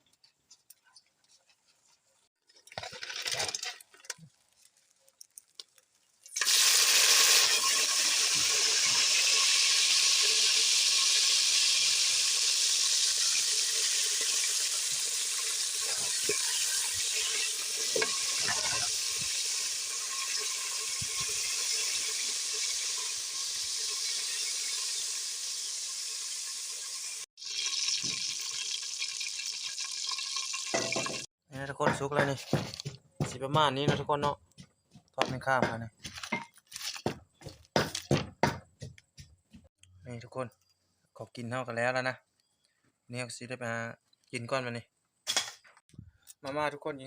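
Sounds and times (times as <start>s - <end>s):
oil sizzling and frying: 2.8s - 31.3s.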